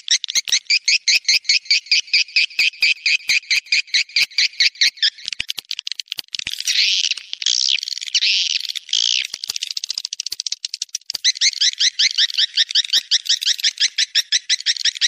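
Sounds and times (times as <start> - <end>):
swiftlet chirps and clicks: 0.3 - 15.0
buzzy bird trills: 6.7 - 15.0.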